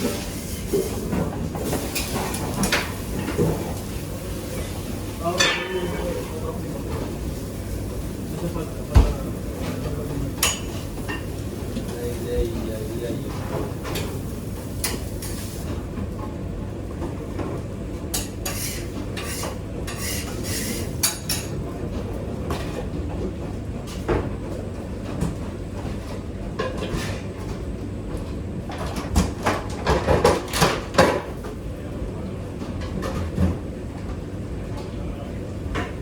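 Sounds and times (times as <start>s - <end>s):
utensils and dishes clinking: 0.0s - 3.8s, 4.5s - 7.2s, 8.4s - 12.2s, 18.1s - 21.6s.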